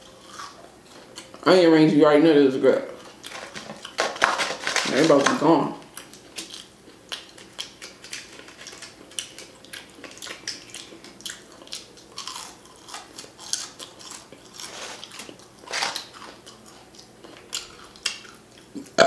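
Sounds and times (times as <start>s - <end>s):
close chewing: 0.0s - 1.4s, 5.9s - 19.0s.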